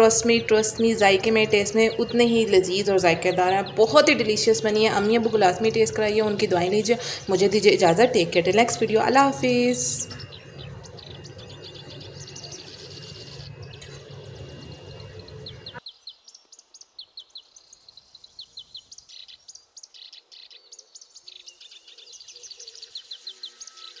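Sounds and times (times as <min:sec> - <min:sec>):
low background hum: 0:00.0 - 0:15.8
small birds chirping: 0:00.0 - 0:24.0.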